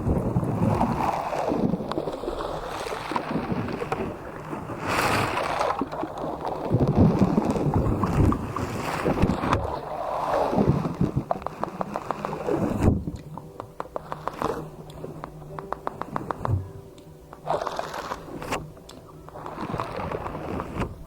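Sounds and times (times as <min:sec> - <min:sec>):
small clicks and pops: 0:11.1 - 0:18.2.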